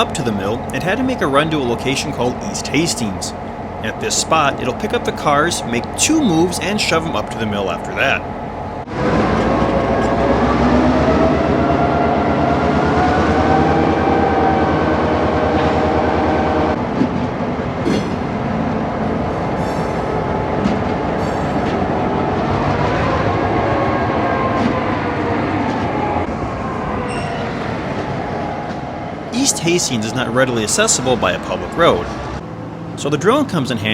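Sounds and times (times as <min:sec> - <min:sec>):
diesel locomotive engine under load: 0:00.0 - 0:33.9.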